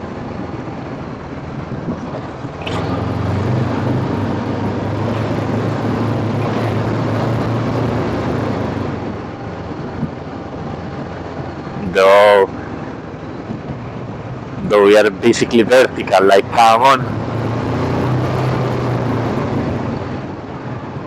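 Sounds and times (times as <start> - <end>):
wind rushing over microphone: 0.0 - 21.0
scooter engine running: 2.6 - 9.0.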